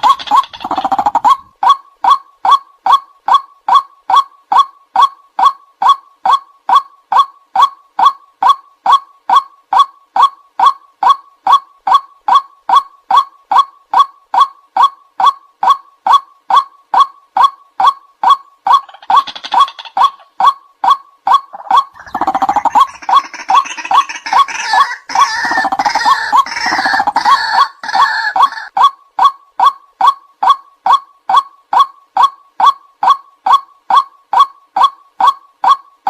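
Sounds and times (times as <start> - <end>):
waterhen repeated calling: 0.0 - 9.4, 10.2 - 35.8
harsh chorus of overlapping calls: 21.6 - 28.7.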